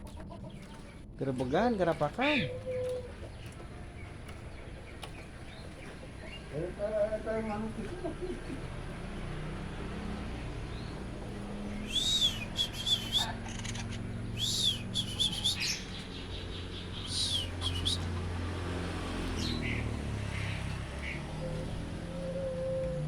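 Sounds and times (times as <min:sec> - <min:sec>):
bird chirping and chattering: 0:00.0 - 0:08.5, 0:10.7 - 0:18.3.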